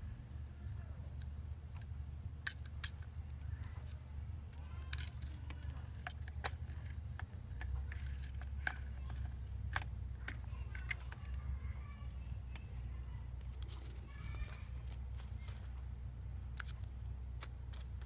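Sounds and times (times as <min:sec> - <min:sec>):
steady low hum: 0:00.0 - 0:18.0
metal parts clicking and tapping: 0:01.2 - 0:12.7, 0:16.5 - 0:18.0.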